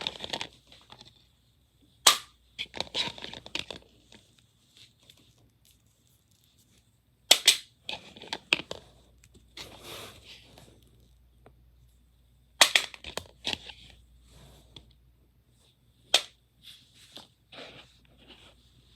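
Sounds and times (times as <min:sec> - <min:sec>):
plastic rustling and clatter: 0:00.0 - 0:01.2, 0:02.6 - 0:06.8.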